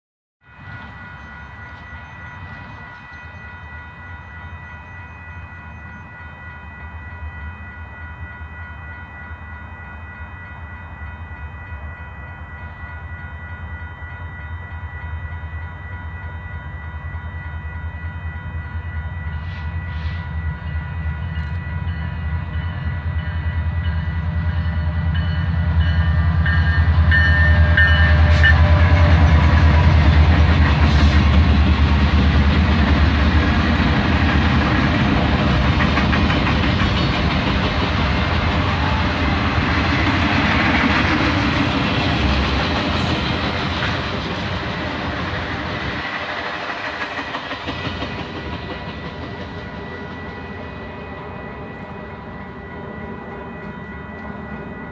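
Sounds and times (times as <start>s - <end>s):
crossing signal bell ringing: 0.4s - 54.9s
diesel locomotive rumble: 17.8s - 54.9s
train cars clattering: 21.2s - 52.0s.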